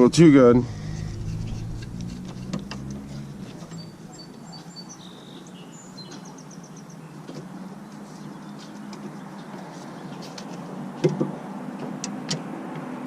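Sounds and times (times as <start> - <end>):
low steady hum: 0.2 - 4.2
small bird chirping: 2.9 - 7.2.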